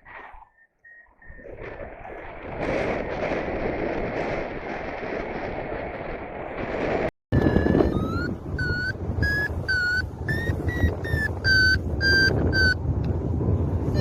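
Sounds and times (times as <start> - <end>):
wind rushing across microphone: 1.2 - 14.0
variometer beeping: 7.4 - 13.1.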